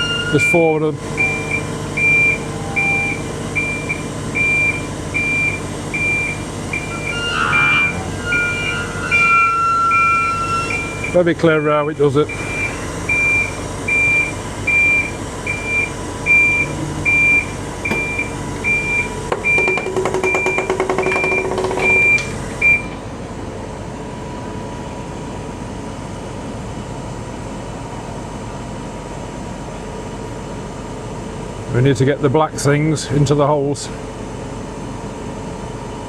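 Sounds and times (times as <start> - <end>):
crane warning alarm beeping: 0.0 - 23.0
steady mechanical hum: 0.0 - 36.0.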